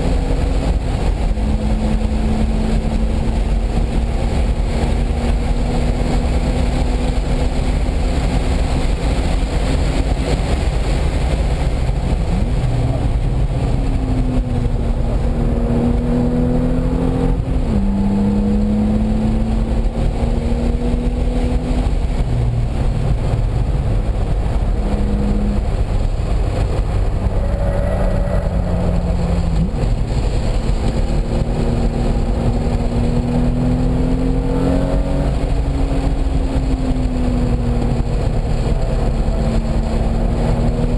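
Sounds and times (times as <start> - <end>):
car engine under load: 0.0 - 40.9
road and wind noise: 0.0 - 40.9.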